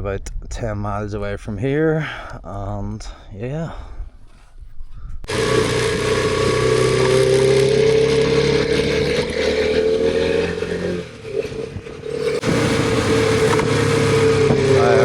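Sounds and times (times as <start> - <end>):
motorcycle engine running: 5.3 - 15.0.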